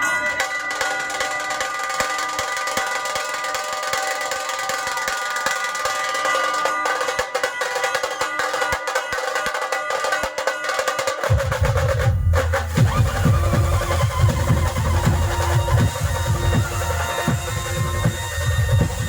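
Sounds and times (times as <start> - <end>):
fast rattling drum roll: 9.2 - 19.0
heavy bass drum beats: 11.2 - 19.0.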